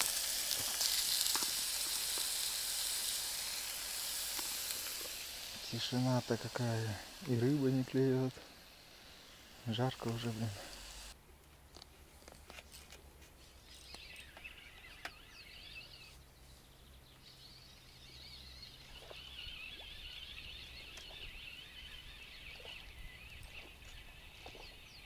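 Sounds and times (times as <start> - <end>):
songbirds twittering and warbling: 3.9 - 11.2, 13.5 - 25.0.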